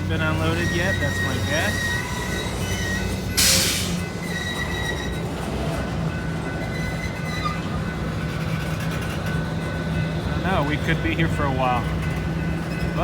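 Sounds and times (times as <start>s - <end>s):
steel wheels squealing: 0.0s - 5.4s, 6.5s - 8.7s
diesel locomotive engine running: 0.0s - 13.0s.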